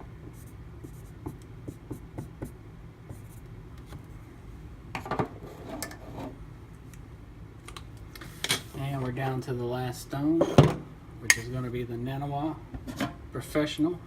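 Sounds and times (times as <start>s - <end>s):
marker writing on paper: 0.4s - 3.4s.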